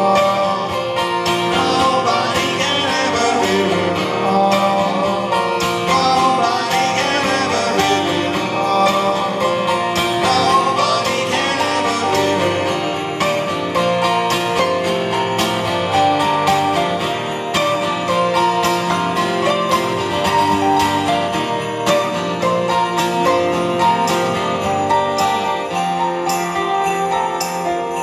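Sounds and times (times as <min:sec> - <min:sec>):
person singing: 0:00.0 - 0:13.9
strummed guitars: 0:00.0 - 0:28.0.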